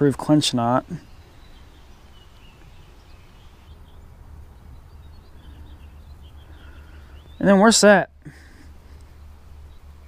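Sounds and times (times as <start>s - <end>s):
faint birds chirping: 0.0s - 10.0s
low steady rumble: 0.6s - 7.5s.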